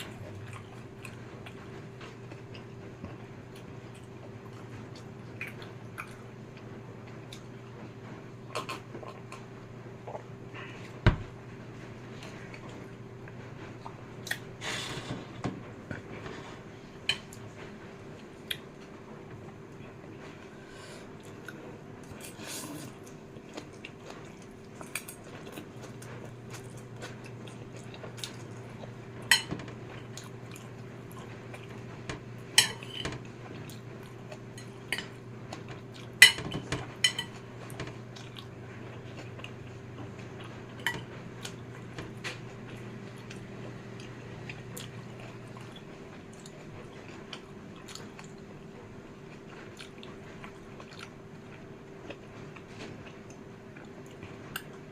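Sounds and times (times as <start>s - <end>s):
soft chewing: 0.0s - 54.9s
cutlery clinking on dish: 29.3s - 29.6s, 32.6s - 33.1s, 36.2s - 37.4s.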